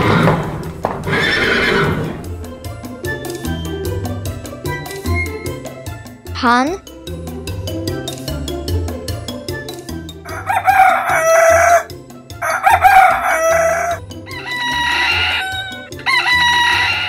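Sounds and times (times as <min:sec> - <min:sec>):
background music with steady beat: 0:02.1 - 0:17.0
rooster crowing: 0:10.3 - 0:17.0.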